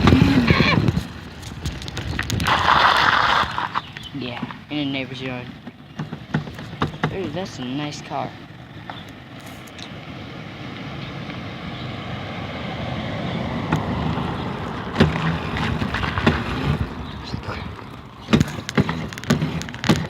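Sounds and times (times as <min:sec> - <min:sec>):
dirt bike engine running: 0:00.0 - 0:09.7, 0:13.7 - 0:20.0
sharp knocks and rattles: 0:05.3 - 0:07.7, 0:14.9 - 0:17.0, 0:18.2 - 0:20.0.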